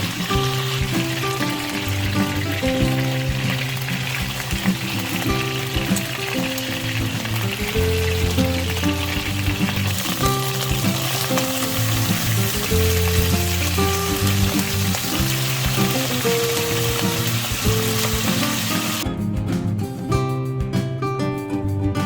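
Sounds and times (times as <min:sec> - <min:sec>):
food sizzling in a pan: 0:00.0 - 0:19.0
background music: 0:00.0 - 0:22.0.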